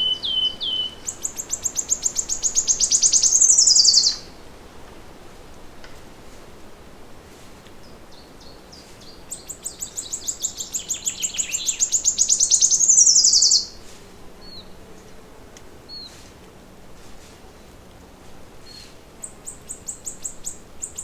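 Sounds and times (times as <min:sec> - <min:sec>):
bird chirps: 0:00.0 - 0:04.3, 0:08.1 - 0:13.8, 0:18.7 - 0:21.0
songbird trilling: 0:00.0 - 0:04.3, 0:08.1 - 0:13.8, 0:18.7 - 0:21.0.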